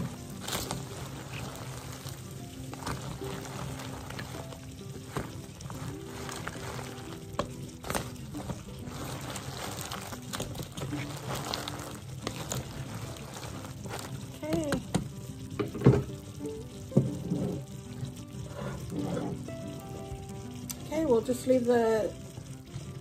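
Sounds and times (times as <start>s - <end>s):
food sizzling in a pan: 0.0s - 23.0s.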